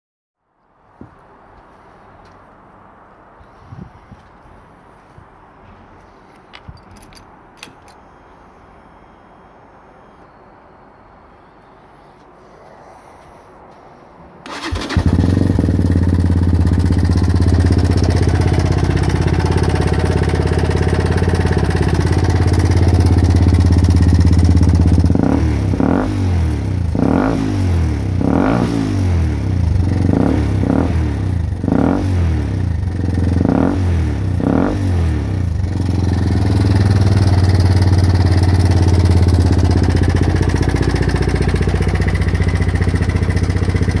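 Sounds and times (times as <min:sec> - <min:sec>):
motorcycle engine idling and revving: 0:14.5 - 0:44.0.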